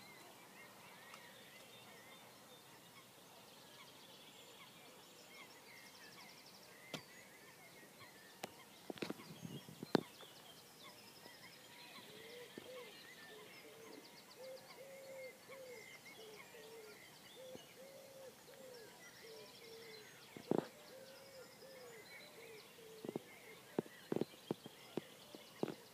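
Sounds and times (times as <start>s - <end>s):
songbird trills and chirps: 0.0s - 25.9s
low bird calls: 5.4s - 25.9s.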